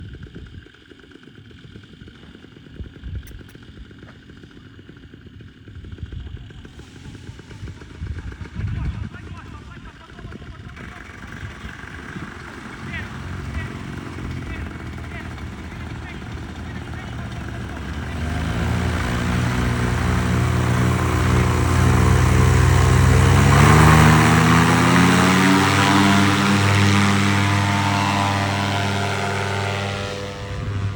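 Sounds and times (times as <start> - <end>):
paramotor engine running: 0.2 - 30.9
wind rumble on microphone: 5.7 - 12.6.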